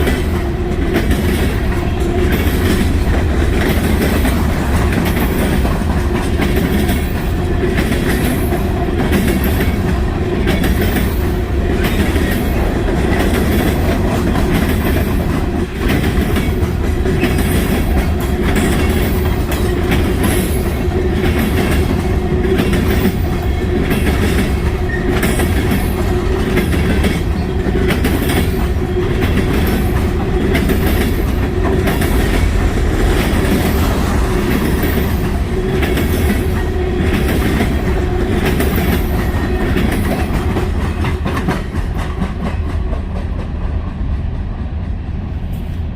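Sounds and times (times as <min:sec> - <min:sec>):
freight train rumbling: 0:00.0 - 0:45.9
train wheels clattering on rail joints: 0:00.0 - 0:45.9.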